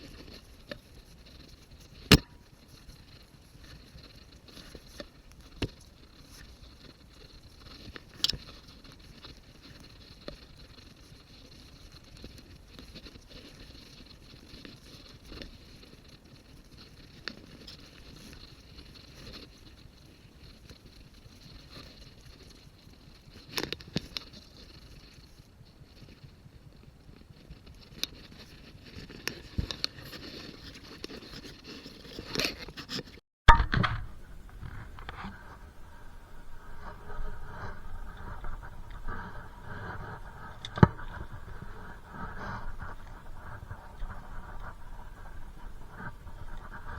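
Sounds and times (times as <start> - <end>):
objects being handled: 28.9 - 46.9
sharp ringing knock: 33.5 - 34.2
low rumbling noise: 33.5 - 46.9.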